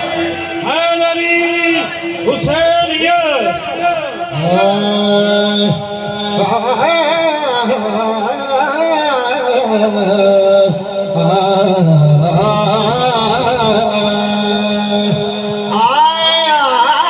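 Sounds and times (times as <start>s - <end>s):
man singing ornamented melody: 4.2s - 17.0s.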